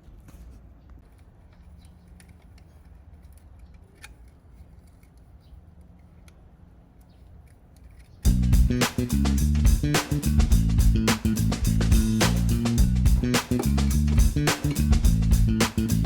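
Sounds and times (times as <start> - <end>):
low steady hum: 8.3 - 16.0.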